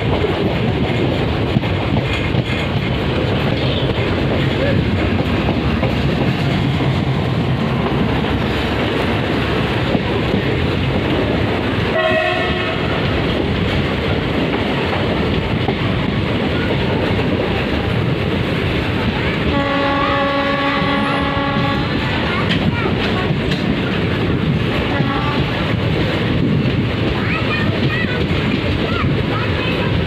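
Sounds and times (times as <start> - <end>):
locomotive engine hum: 0.0 - 30.0
train wheels rumbling on rails: 0.0 - 30.0
train horn: 11.9 - 13.1, 19.5 - 22.2, 24.9 - 25.6.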